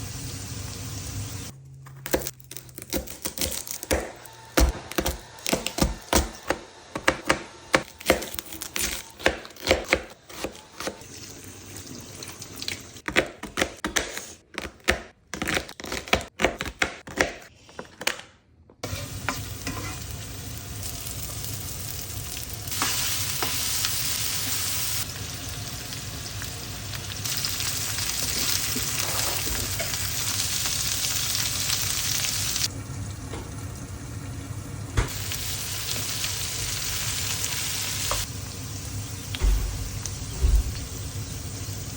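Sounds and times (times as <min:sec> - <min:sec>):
food frying in a pan: 0:00.0 - 0:01.5, 0:18.8 - 0:41.9.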